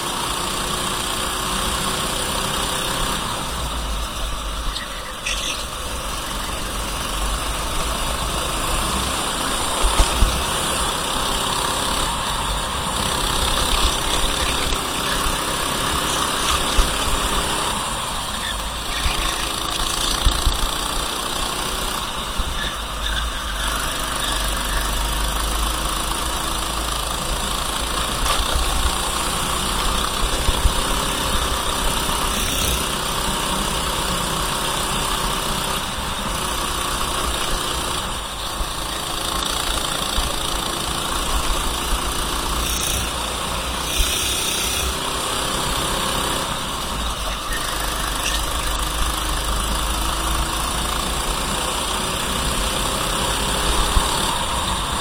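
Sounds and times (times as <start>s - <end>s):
kart engine running at speed: 0.0s - 55.0s.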